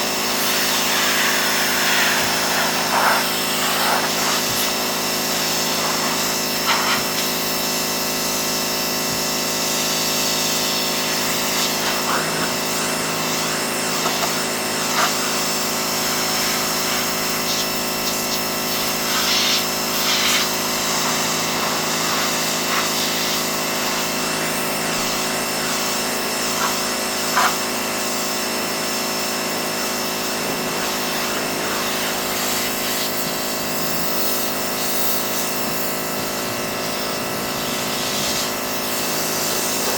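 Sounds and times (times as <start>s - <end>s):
high-pressure spray hissing: 0.0s - 39.9s
pressure washer drone: 0.0s - 39.9s.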